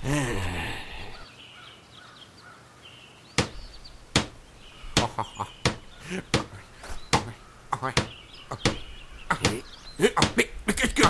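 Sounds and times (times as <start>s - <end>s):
sharp knocks or clicks: 3.4s - 4.4s, 5.0s - 9.6s, 10.2s - 10.4s.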